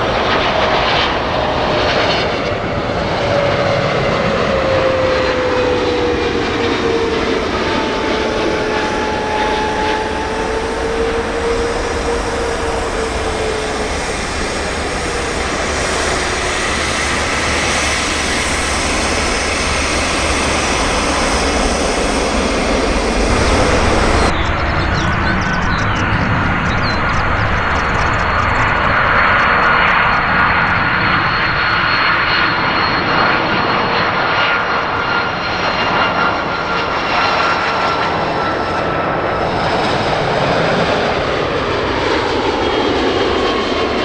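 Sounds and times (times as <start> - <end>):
jet engines whining: 8.2 - 32.8.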